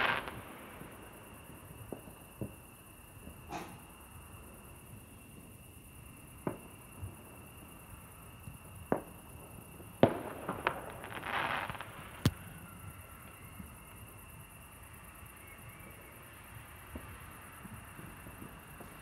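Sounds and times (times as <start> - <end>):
fireworks crackle: 0.0 - 2.6, 10.0 - 12.6
fireworks bangs: 10.0 - 12.4.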